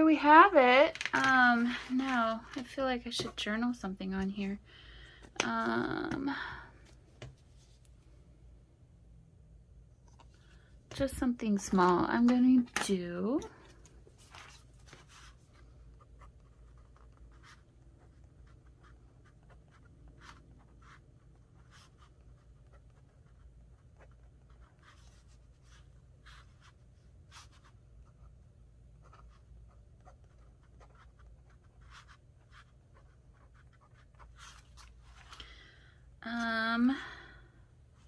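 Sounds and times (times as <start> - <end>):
pen scratching on paper: 29.0 - 34.6.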